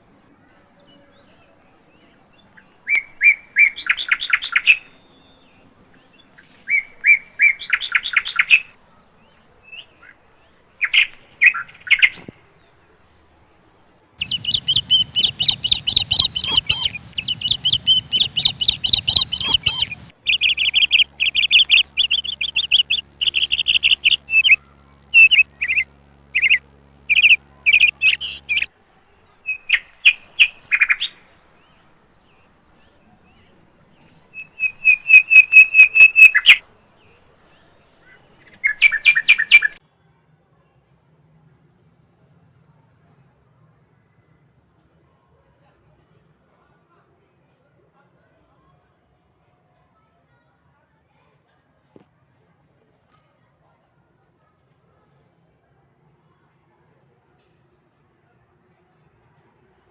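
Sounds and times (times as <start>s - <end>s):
small birds chirping: 14.2s - 28.7s, 34.4s - 36.6s, 38.4s - 39.8s
steady low hum: 14.2s - 28.7s.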